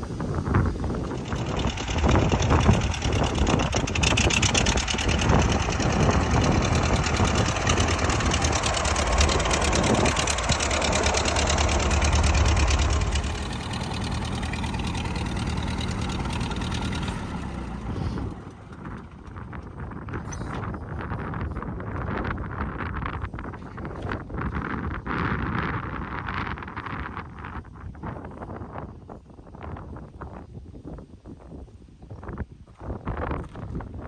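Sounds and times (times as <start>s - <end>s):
tractor engine running: 0.0s - 20.4s.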